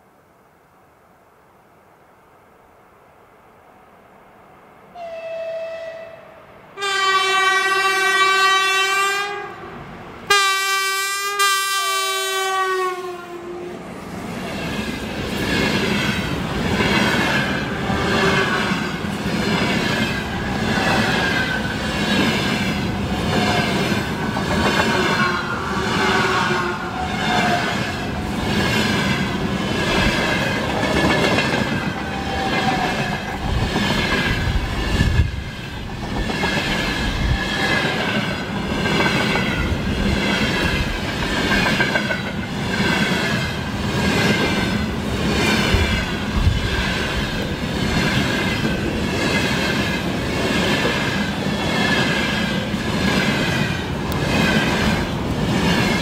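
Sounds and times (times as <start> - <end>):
locomotive horn blasts: 5.0 - 9.7, 10.3 - 13.6
train wheels clattering over rail joints: 28.2 - 56.0.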